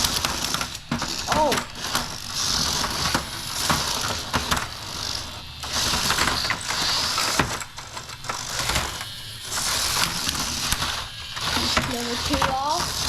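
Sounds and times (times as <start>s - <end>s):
plastic clattering: 0.0s - 9.1s
toy robot motors whirring: 0.0s - 13.0s.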